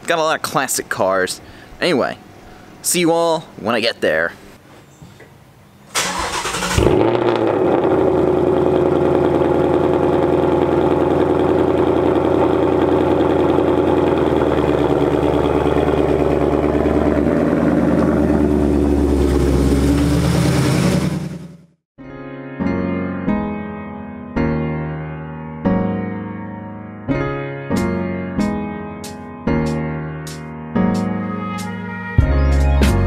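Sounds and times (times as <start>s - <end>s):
car engine fast idle: 5.9s - 21.7s.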